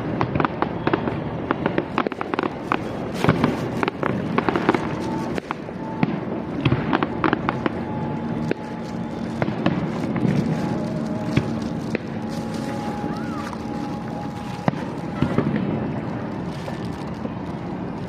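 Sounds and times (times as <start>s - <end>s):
faint steady tones: 0.0s - 18.0s
fireworks bangs and crackles: 0.0s - 18.0s.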